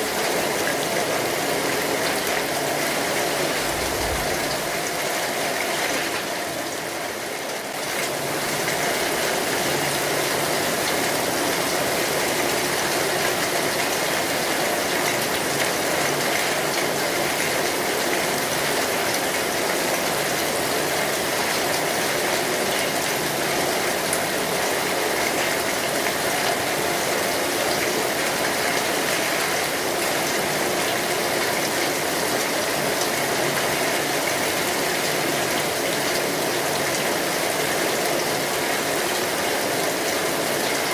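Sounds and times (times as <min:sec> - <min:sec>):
rain on an umbrella: 0:00.0 - 0:40.9.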